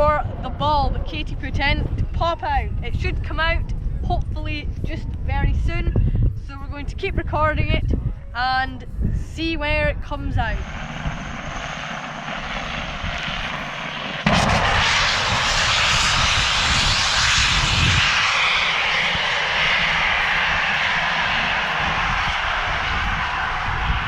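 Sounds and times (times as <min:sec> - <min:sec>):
steady rush of air: 0:10.5 - 0:24.0
compressed air blast from pipe: 0:14.2 - 0:21.2.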